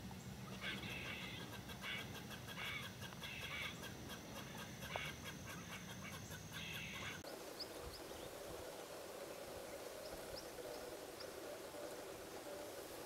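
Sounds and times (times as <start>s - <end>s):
bird calling: 0.2s - 8.1s.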